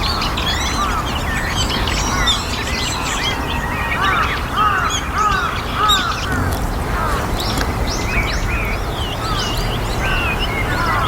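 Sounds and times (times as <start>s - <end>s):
starlings chirping: 0.0s - 11.0s
steady low rumble: 6.0s - 9.4s.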